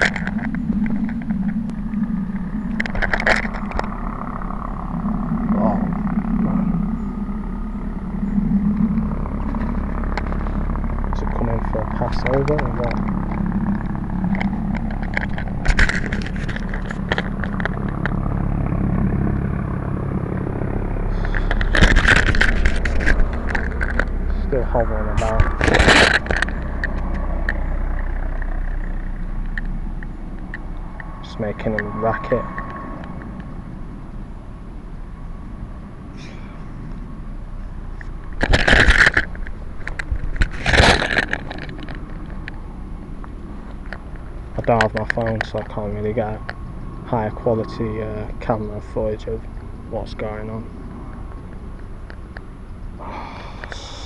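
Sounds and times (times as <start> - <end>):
microphone handling crackle: 0.0 - 33.8, 37.6 - 46.6
helicopter hovering: 0.0 - 54.0.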